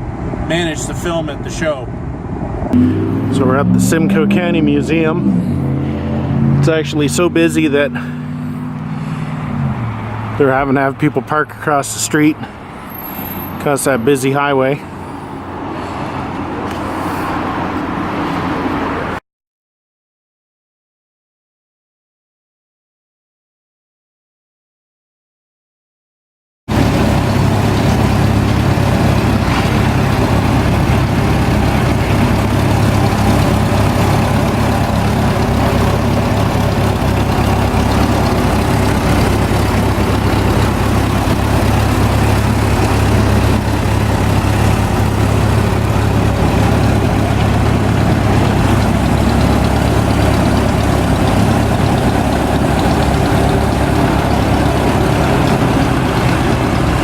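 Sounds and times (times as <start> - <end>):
heavy engine idling: 26.7 - 57.0.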